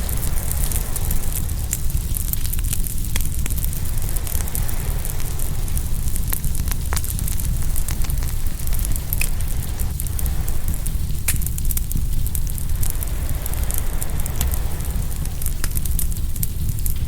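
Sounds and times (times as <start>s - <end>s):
wood fire crackling: 0.0s - 17.0s
ocean waves: 3.7s - 6.2s, 12.2s - 16.1s.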